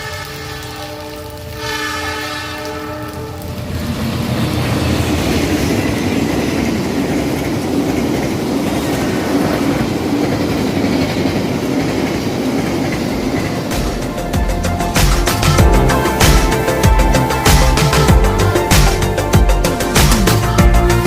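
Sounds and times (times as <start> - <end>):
train wheels rushing on rails: 0.0 - 21.0
clickety-clack of wheels: 3.6 - 14.5.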